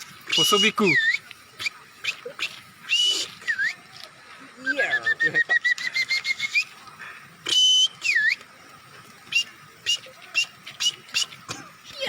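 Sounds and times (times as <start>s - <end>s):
person whistling bird calls: 0.3s - 3.9s, 4.6s - 6.8s, 7.4s - 8.5s, 9.3s - 11.4s.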